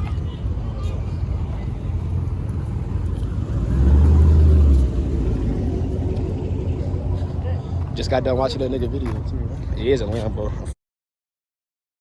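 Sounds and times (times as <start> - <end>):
car rumble while driving: 0.0 - 8.0
engine drone: 0.2 - 7.9.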